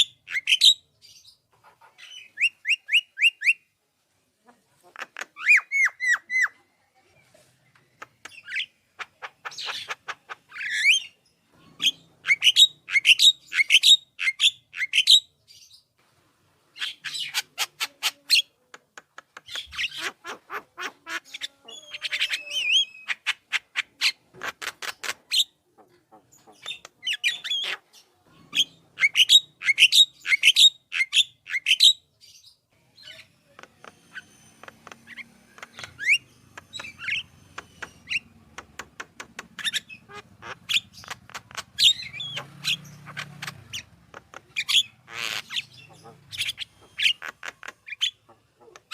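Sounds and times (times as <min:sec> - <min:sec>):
myna squawking and chattering: 0:04.5 - 0:06.6, 0:07.9 - 0:11.0, 0:16.8 - 0:31.8, 0:33.0 - 0:48.9
bird fast repeated clicking: 0:18.7 - 0:19.9, 0:24.4 - 0:25.2, 0:33.6 - 0:39.8, 0:40.7 - 0:42.4, 0:46.5 - 0:48.0.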